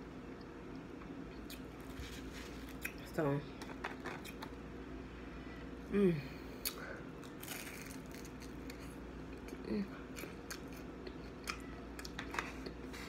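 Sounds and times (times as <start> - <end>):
crunchy food being chewed: 6.7 - 13.0.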